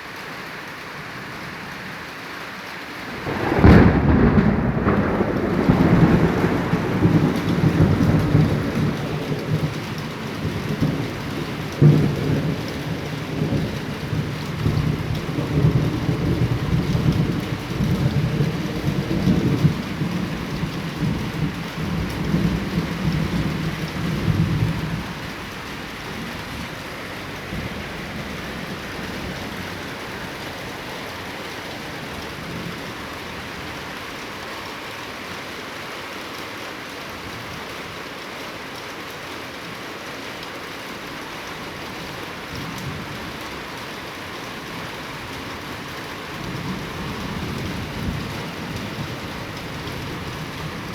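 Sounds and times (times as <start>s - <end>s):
heavy rain: 0.0s - 50.9s
loud thunder crack: 3.1s - 11.1s
thunder rumbling: 3.1s - 33.8s, 44.8s - 50.9s.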